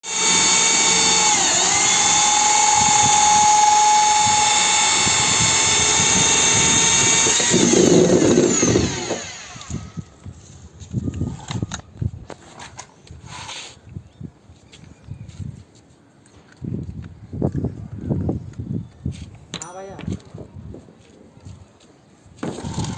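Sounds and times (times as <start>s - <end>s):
electric drill whining: 0.0s - 10.2s.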